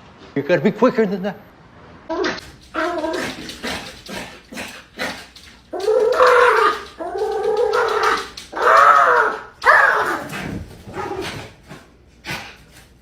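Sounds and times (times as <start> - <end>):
dog howling whines: 5.8 - 10.3.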